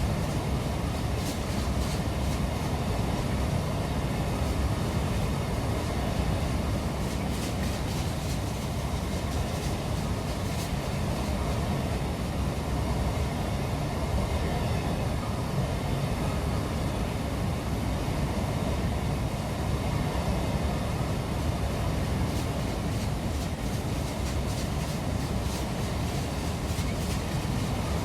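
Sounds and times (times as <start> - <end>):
train wheels rumbling on track: 0.0 - 14.0, 20.7 - 28.0.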